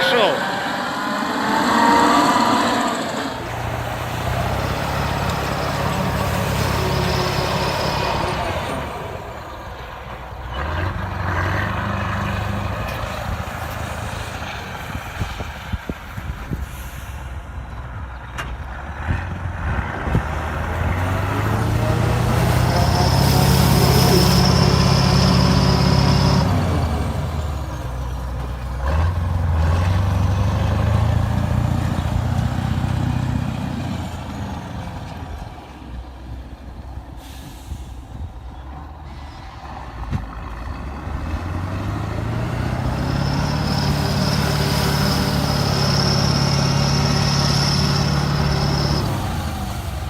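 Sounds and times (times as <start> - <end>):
high whine: 0.0 - 9.2, 21.7 - 26.8
tractor diesel engine under load: 0.0 - 50.0.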